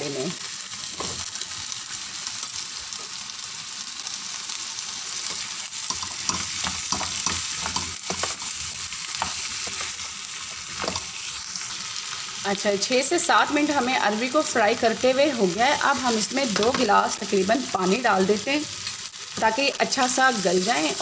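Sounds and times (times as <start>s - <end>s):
food frying in oil: 0.0s - 21.0s
spatula scraping pan: 5.3s - 11.3s.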